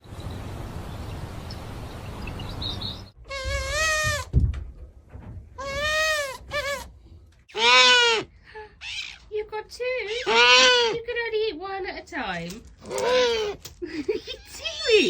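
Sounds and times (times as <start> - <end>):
bleat-like animal calls: 3.3 - 4.3, 5.6 - 6.9, 7.5 - 9.1, 10.1 - 11.0.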